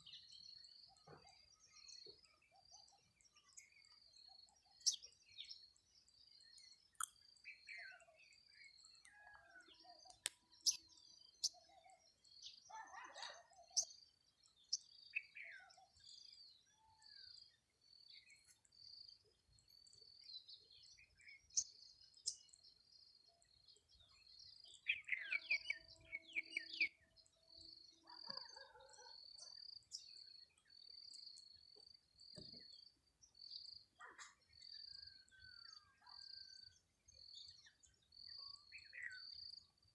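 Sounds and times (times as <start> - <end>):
bird chirps and calls: 8.7 - 14.1, 24.0 - 27.4.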